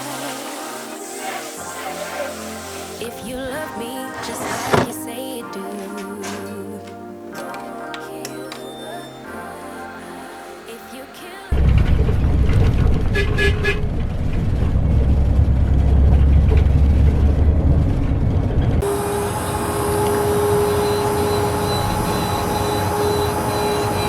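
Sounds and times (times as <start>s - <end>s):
blender motor running: 18.8s - 24.0s.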